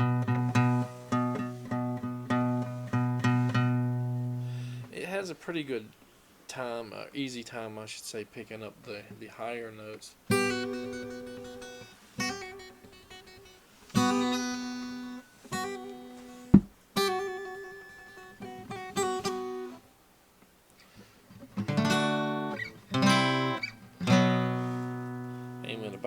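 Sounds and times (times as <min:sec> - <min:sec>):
acoustic guitar chords: 0:00.0 - 0:05.0, 0:10.3 - 0:19.8, 0:21.4 - 0:26.0.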